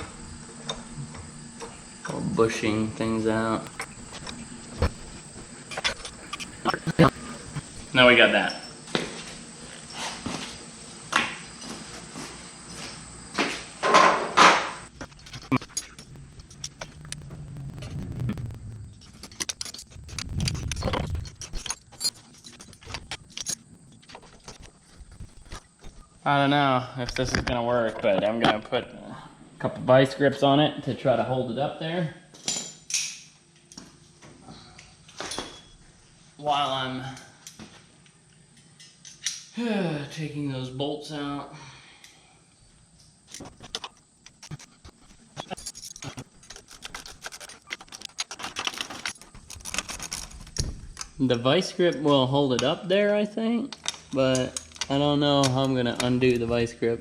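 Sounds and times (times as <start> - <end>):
hand tools clinking against metal: 5.7 - 9.0
rustling: 14.8 - 26.2.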